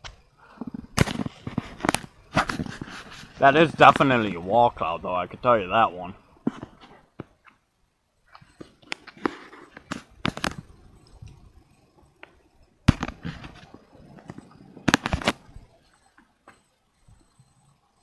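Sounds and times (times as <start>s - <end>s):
sharp cracks and pops: 0.0s - 4.4s, 8.3s - 11.4s, 12.0s - 16.7s.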